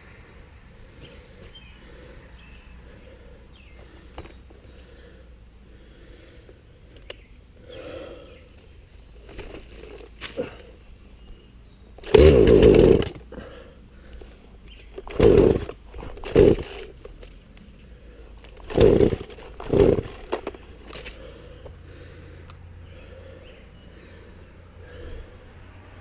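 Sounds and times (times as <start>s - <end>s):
chainsaw pull-start cranking: 12.0s - 13.3s, 14.9s - 17.2s, 18.4s - 21.2s.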